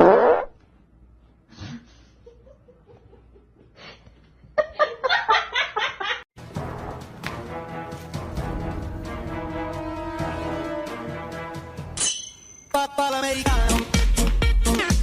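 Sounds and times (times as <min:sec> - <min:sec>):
music: 0:06.4 - 0:12.0, 0:12.6 - 0:15.0.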